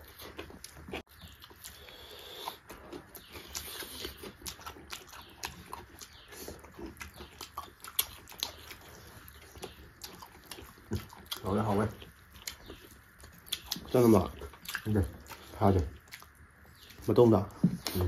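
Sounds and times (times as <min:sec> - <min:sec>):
people chewing: 0:00.0 - 0:18.0.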